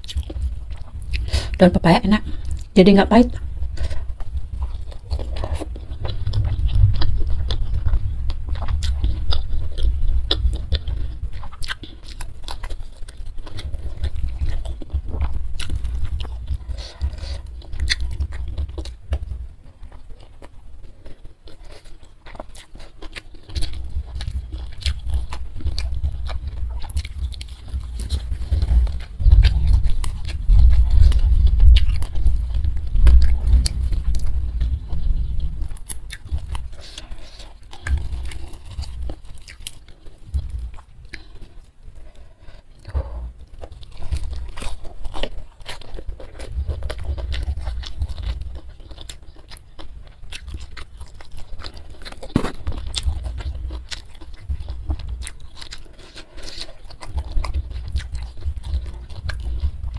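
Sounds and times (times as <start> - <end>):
wet chewing and lip-smacking: 0.0 - 59.9
heavy low thuds: 0.2 - 11.4, 23.9 - 39.2, 42.8 - 44.9.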